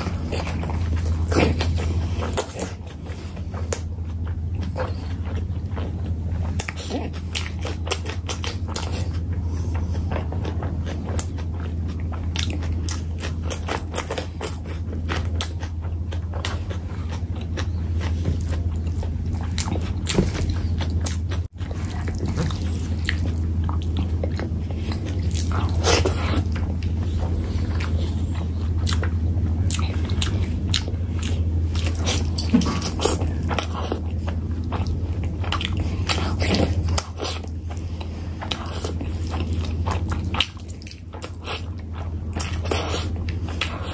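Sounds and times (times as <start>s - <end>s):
steady low hum: 0.0s - 43.9s
wet chewing and smacking: 0.0s - 43.9s.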